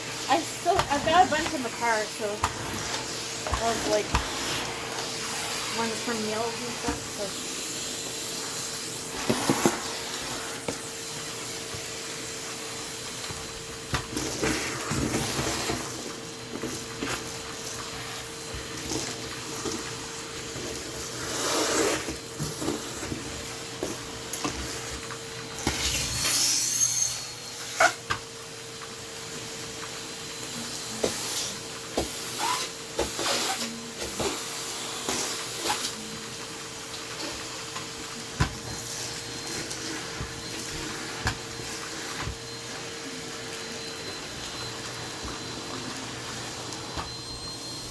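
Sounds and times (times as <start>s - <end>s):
motor hum with hiss: 0.0s - 47.9s
household items clattering: 0.3s - 7.3s.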